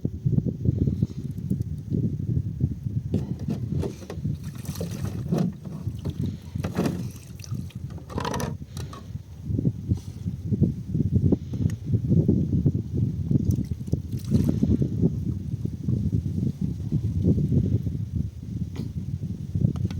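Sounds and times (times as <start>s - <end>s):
wind buffeting microphone: 0.0s - 19.9s
short rustles and knocks: 3.2s - 7.2s.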